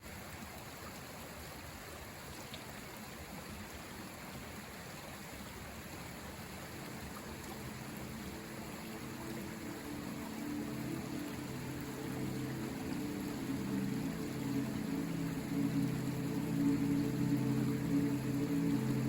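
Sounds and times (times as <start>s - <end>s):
river water rushing: 0.1s - 19.0s
faint low steady tones: 6.4s - 19.0s.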